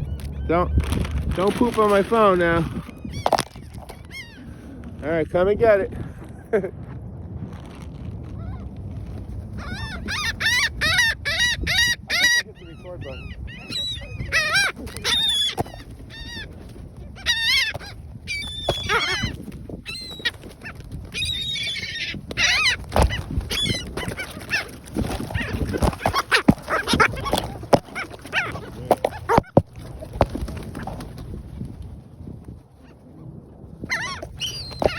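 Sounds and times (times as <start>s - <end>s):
gulls crying: 8.4s - 31.3s, 32.8s - 34.9s.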